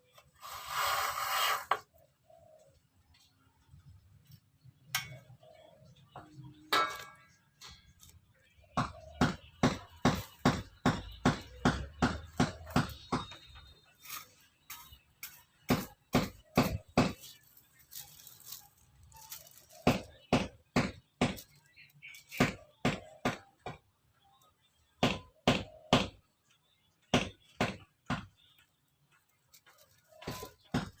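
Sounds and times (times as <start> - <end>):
hand tools knocking and tapping: 8.7 - 13.8.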